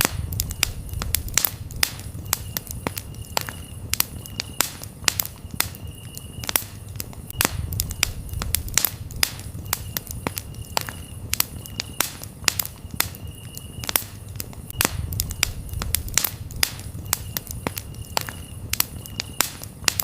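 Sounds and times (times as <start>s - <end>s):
campfire crackling and popping: 0.0s - 20.0s
cricket trilling: 0.4s - 20.0s.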